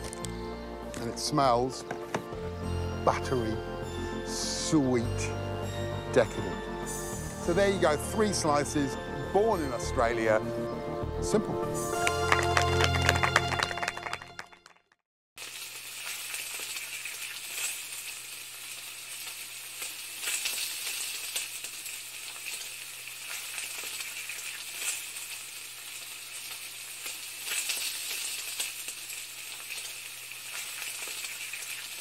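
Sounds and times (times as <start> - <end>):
food sizzling in pan: 15.4 - 32.0.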